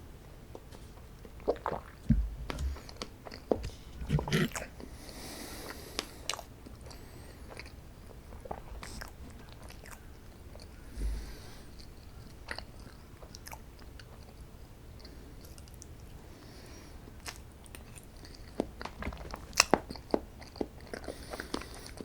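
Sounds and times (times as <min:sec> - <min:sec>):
person chewing crunchy sweets: 0:01.2 - 0:14.4, 0:17.1 - 0:22.0
mouth clicks: 0:01.6 - 0:04.7
soft low thud: 0:02.1 - 0:02.9.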